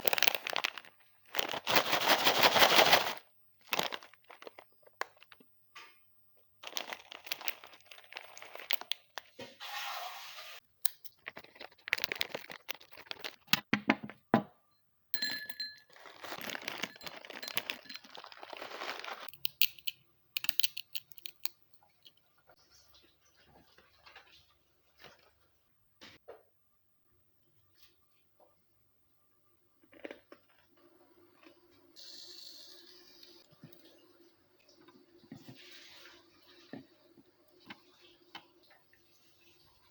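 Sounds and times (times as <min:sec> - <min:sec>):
plastic packet crinkling: 0:00.0 - 0:05.4, 0:06.6 - 0:09.3, 0:10.9 - 0:13.6, 0:15.9 - 0:19.9
plastic packet tearing: 0:00.0 - 0:05.4, 0:06.6 - 0:09.3, 0:10.9 - 0:13.6, 0:16.0 - 0:19.9.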